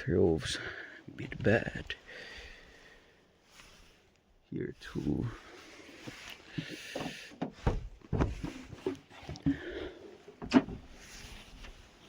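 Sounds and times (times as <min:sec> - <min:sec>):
rustling: 0:04.9 - 0:12.0
vehicle door knocks and clunks: 0:07.4 - 0:08.5.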